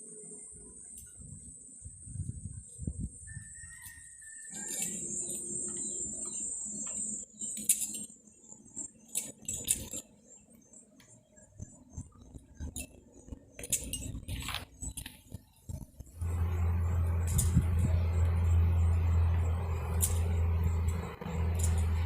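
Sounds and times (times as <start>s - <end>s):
high-pitched insect buzzing: 0.0s - 22.0s
low rumble: 16.1s - 22.0s.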